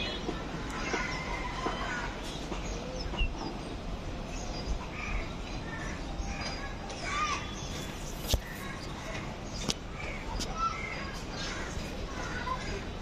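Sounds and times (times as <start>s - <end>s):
bird chirps: 0.0s - 12.8s
low city hum: 0.0s - 13.0s.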